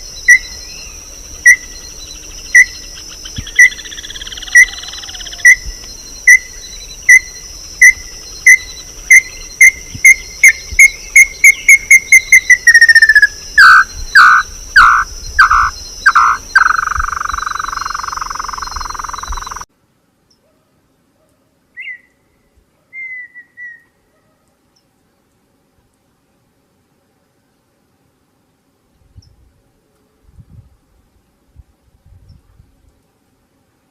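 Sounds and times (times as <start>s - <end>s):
bird singing whistled notes: 0.0s - 19.6s, 21.7s - 24.0s
high-pitched insect drone: 0.0s - 19.7s.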